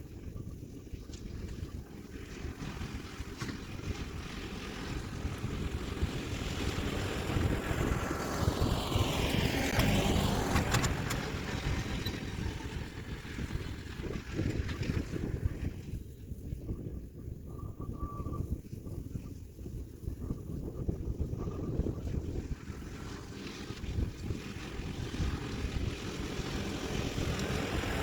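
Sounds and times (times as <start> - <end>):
diesel tractor running: 2.0 - 16.0, 22.2 - 28.0.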